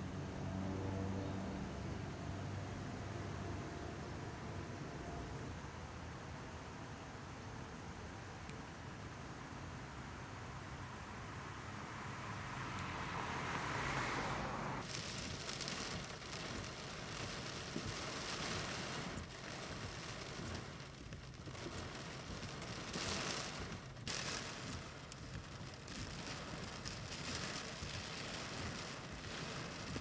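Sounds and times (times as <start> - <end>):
heavy rain: 12.0 - 30.0.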